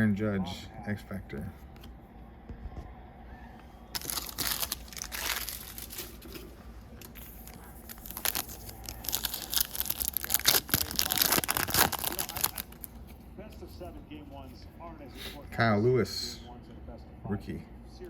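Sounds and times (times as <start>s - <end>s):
foil wrapper tearing and crinkling: 4.0s - 13.0s.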